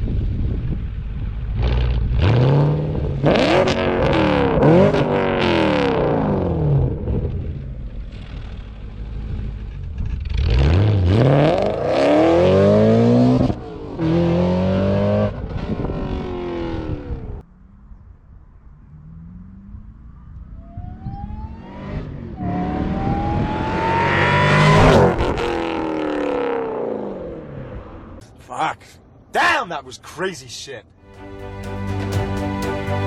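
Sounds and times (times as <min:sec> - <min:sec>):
car engine revving hard: 0:01.6 - 0:07.3, 0:10.4 - 0:17.2, 0:21.5 - 0:27.9.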